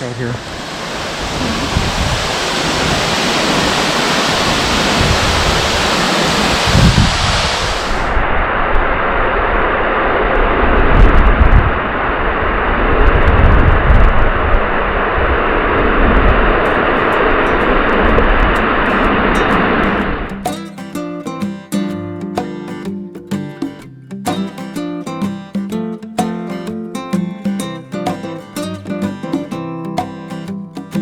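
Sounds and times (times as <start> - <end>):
rushing water: 0.0 - 10.1, 14.8 - 21.7
wind buffeting microphone: 0.3 - 20.4.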